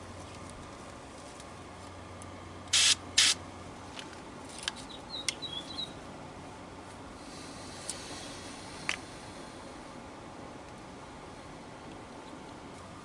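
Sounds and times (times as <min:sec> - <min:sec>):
aerosol can spraying: 0:02.7 - 0:03.4.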